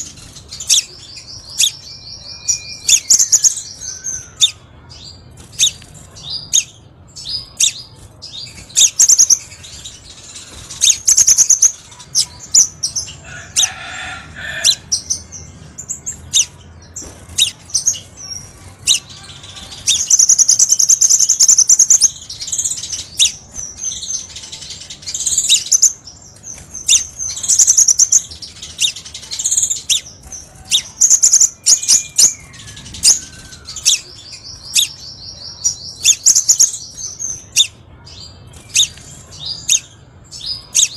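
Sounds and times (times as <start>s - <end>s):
bird chirping and trilling: 0.0s - 40.9s.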